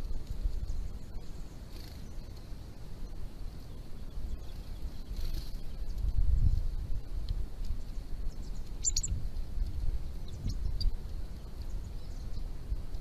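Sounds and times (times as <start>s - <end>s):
low steady rumble: 0.0s - 13.0s
small birds chirping: 0.0s - 13.0s.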